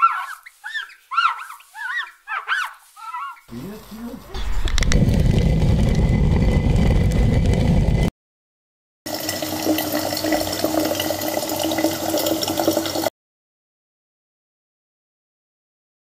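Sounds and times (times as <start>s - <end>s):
steady gritty hum: 3.5s - 8.1s.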